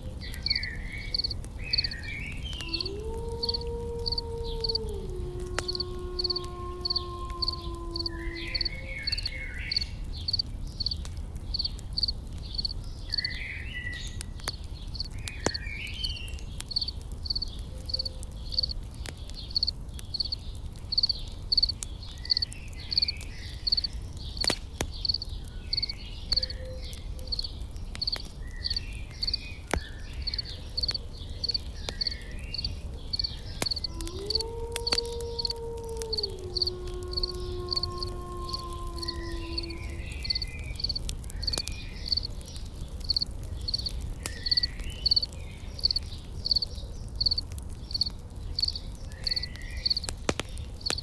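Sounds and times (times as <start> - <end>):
campfire crackling: 0.0 - 51.0
insect chirping: 5.6 - 13.2, 16.1 - 18.8, 19.5 - 21.7, 22.3 - 24.1, 25.0 - 26.6, 30.2 - 42.3, 43.0 - 50.1
bird chirps: 7.6 - 14.2.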